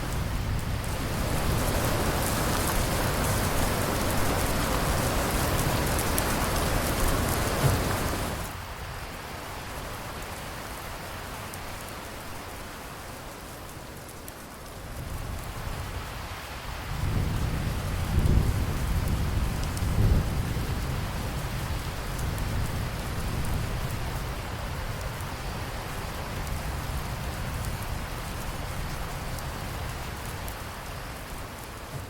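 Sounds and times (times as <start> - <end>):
thunder rumbling: 0.0 - 8.5, 16.9 - 25.3
heavy rain falling: 0.0 - 32.0.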